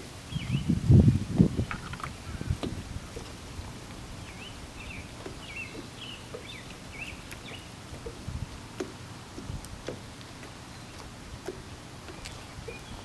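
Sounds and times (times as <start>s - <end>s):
small bird singing: 4.2s - 7.7s, 12.1s - 13.0s.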